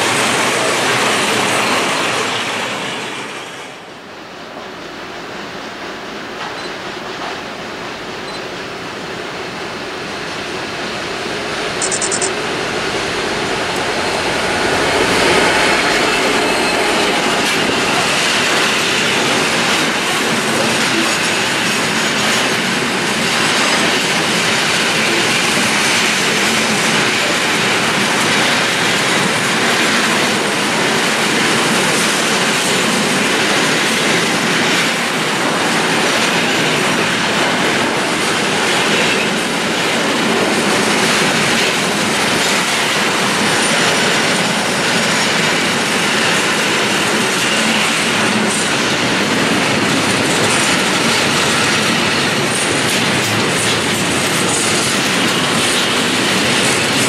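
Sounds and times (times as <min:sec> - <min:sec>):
diesel locomotive passing: 0:00.0 - 0:57.0
wagons rolling on rails: 0:15.8 - 0:57.0.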